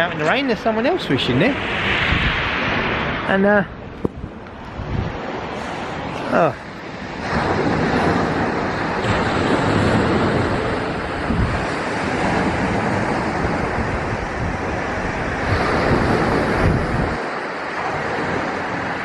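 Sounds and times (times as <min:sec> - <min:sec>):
waves breaking on shingle: 0:07.0 - 0:19.0.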